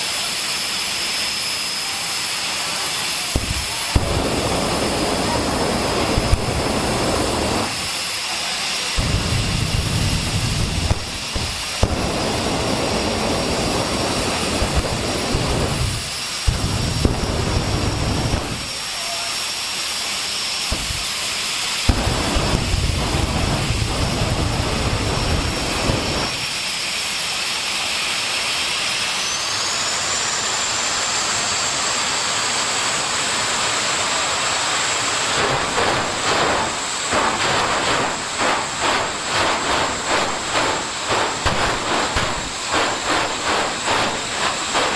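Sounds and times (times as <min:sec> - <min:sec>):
rushing exhaust: 0:00.0 - 0:44.9
turbine engine whine: 0:00.0 - 0:44.9
low rumbles: 0:03.4 - 0:07.9, 0:09.0 - 0:18.8, 0:20.7 - 0:21.2, 0:21.9 - 0:26.5, 0:35.3 - 0:44.9.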